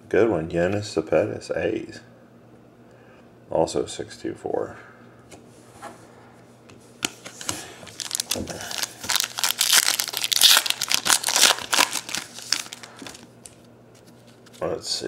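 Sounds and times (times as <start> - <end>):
wrapper crinkling and tearing: 7.9 - 14.6.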